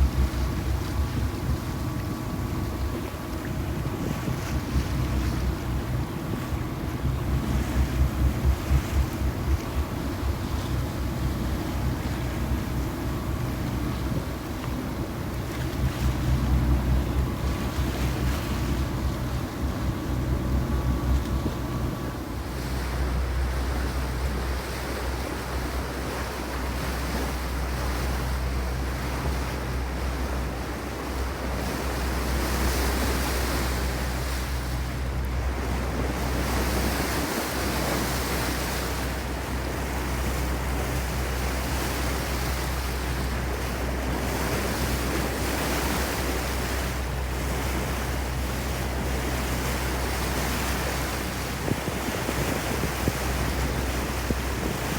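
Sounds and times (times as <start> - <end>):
wind noise on microphone: 0.0 - 22.2, 48.8 - 54.9
faint hum: 0.0 - 54.9
steady low rumble: 0.0 - 54.9.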